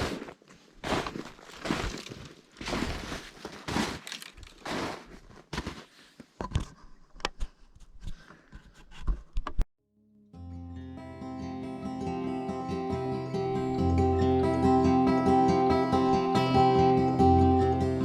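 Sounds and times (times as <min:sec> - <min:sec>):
footsteps crunching on frozen ground: 0:00.0 - 0:06.2
acoustic guitar music: 0:10.3 - 0:18.0.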